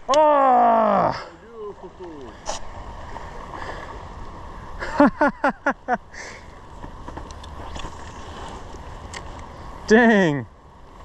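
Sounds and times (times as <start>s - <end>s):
river water rushing: 0.0s - 11.0s
person laughing: 4.8s - 6.0s.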